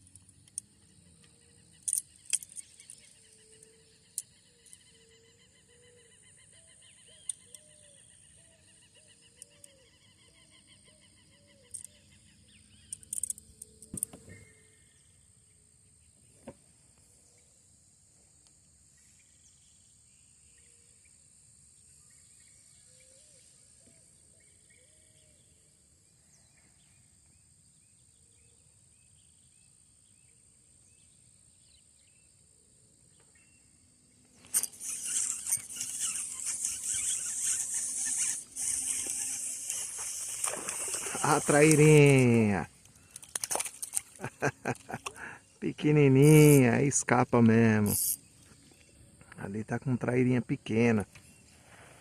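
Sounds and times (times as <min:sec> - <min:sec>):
bird chirps: 0:00.5 - 0:15.3, 0:34.4 - 0:51.9
high insect buzzing: 0:34.3 - 0:45.4, 0:47.4 - 0:48.5
fish splashing in water: 0:34.9 - 0:42.3, 0:43.0 - 0:45.2.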